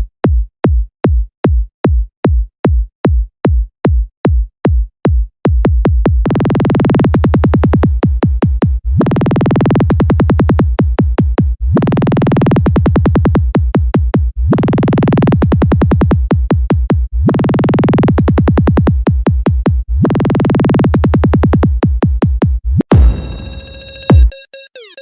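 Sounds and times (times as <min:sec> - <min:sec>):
drum machine kick drum hits: 0:00.0 - 0:06.4, 0:07.0 - 0:08.8, 0:09.8 - 0:11.6, 0:12.6 - 0:14.4, 0:15.4 - 0:17.1, 0:18.1 - 0:19.9, 0:20.9 - 0:24.4
steady bass tone: 0:06.2 - 0:08.0, 0:08.8 - 0:10.8, 0:11.6 - 0:13.4, 0:14.4 - 0:16.2, 0:17.1 - 0:19.0, 0:19.8 - 0:21.7, 0:22.6 - 0:25.0.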